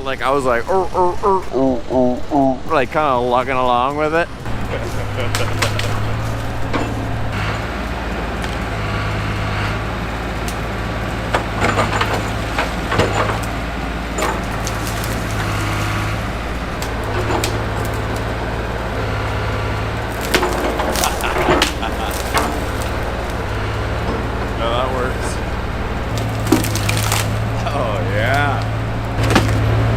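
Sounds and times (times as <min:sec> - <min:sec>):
excavator engine running: 0:00.0 - 0:29.9
branches cracking and splintering: 0:04.4 - 0:29.9.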